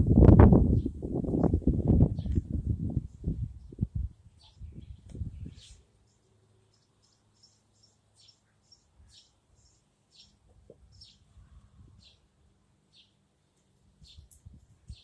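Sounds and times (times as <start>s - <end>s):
birds chirping: 3.6s - 11.4s, 12.0s - 12.3s, 14.0s - 15.0s.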